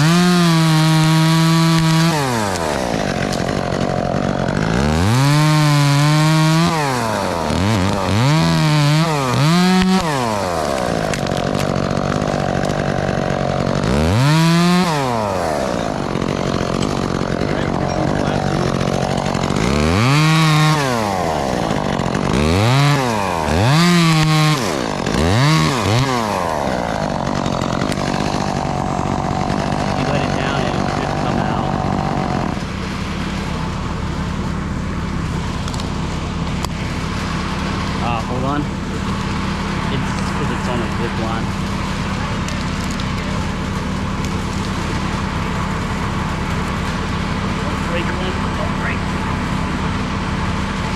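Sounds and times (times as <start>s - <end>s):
chainsaw revving: 0.0s - 50.9s.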